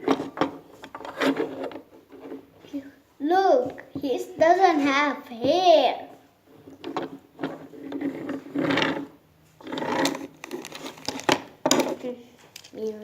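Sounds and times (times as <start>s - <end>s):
plastic packaging rustling: 10.0s - 11.5s.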